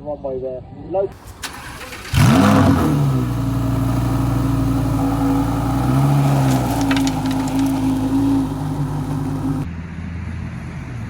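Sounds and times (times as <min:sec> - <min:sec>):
car engine revving: 0:01.2 - 0:09.7.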